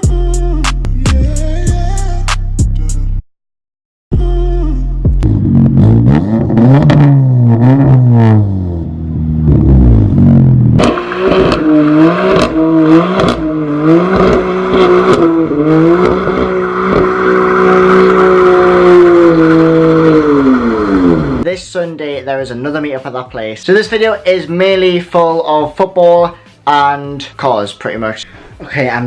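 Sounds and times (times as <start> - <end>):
car engine revving: 5.1 - 21.5.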